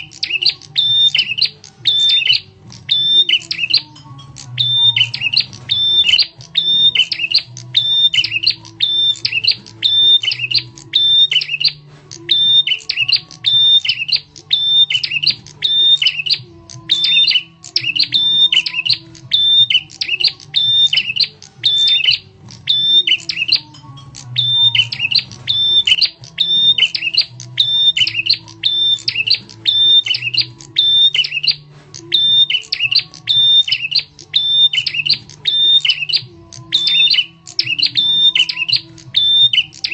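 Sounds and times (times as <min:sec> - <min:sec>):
sharp chirping bird calls: 0:00.0 - 0:39.9.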